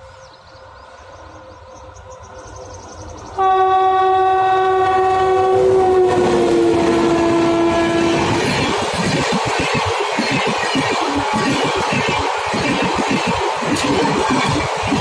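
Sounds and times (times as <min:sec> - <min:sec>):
passing train rushing: 0:00.0 - 0:15.0
locomotive horn blast: 0:03.4 - 0:08.6.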